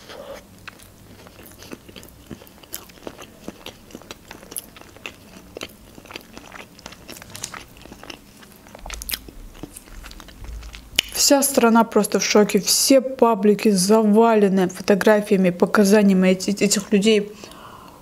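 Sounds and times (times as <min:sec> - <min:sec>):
person chewing food: 0:00.0 - 0:11.2.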